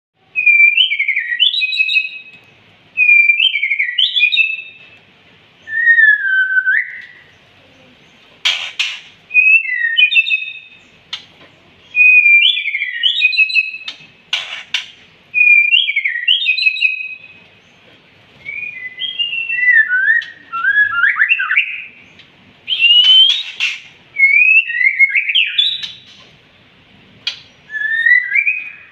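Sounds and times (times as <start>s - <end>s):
bird singing whistled phrases: 0.3s - 2.4s, 3.0s - 4.8s, 5.6s - 7.4s, 8.8s - 10.9s, 11.9s - 14.0s, 15.3s - 17.4s, 18.4s - 22.0s, 22.7s - 26.2s, 27.3s - 28.9s.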